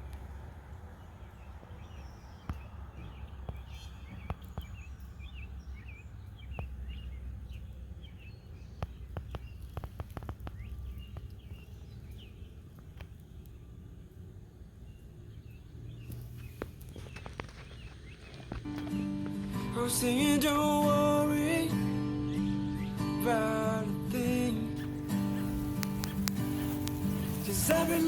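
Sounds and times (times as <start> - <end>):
small birds chirping: 0.0 - 28.0
sharp clicks: 24.8 - 28.0.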